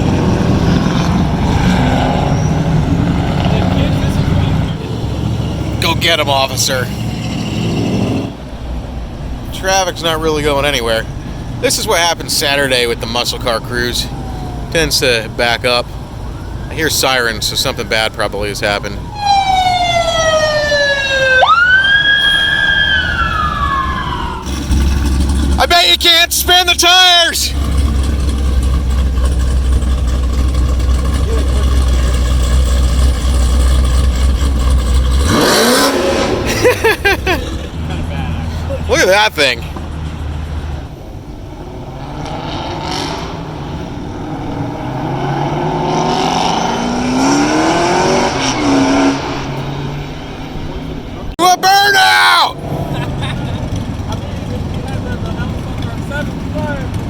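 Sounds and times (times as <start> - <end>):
car engine revving: 0.0 - 51.3, 52.4 - 57.0
car engines running: 0.0 - 57.0
traffic rumble: 0.0 - 57.0
emergency siren wailing: 13.7 - 24.8.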